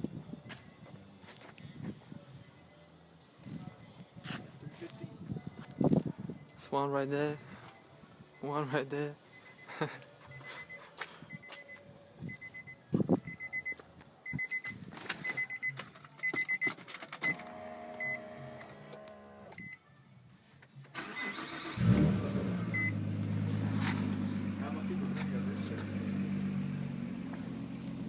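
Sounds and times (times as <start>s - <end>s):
car engine starting and idling: 20.9s - 28.0s
short electronic beep: 21.2s - 23.0s.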